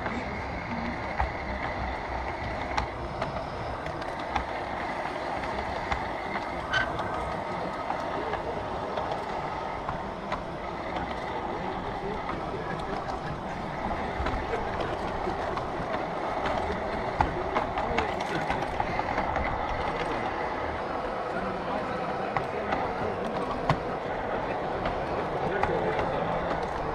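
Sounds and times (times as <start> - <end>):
model train running and gear noise: 0.0 - 26.9
wheels clicking on rails: 0.0 - 26.9.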